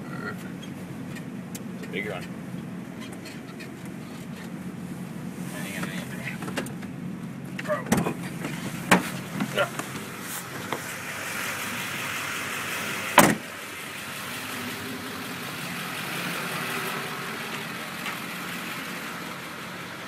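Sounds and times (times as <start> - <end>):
vehicle engine running: 0.0 - 20.0
loud thump: 13.2 - 13.5.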